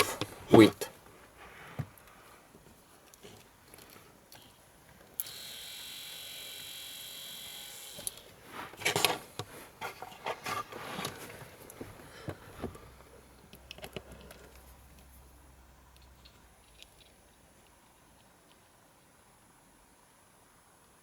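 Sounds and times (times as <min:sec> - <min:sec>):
small electric motor whining: 0:05.2 - 0:08.2.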